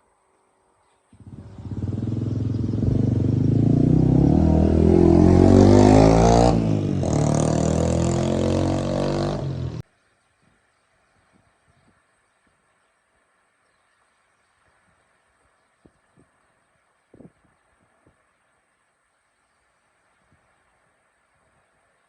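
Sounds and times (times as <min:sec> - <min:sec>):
jeep engine revving: 0:01.3 - 0:09.8.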